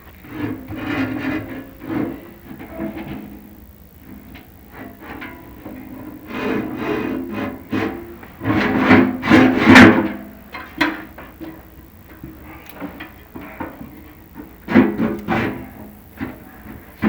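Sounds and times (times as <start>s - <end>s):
flue ringing low tones: 10.2s - 17.0s.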